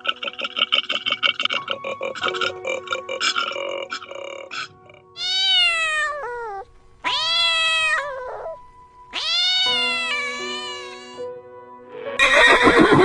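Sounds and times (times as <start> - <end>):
cat meowing: 5.2 - 11.3.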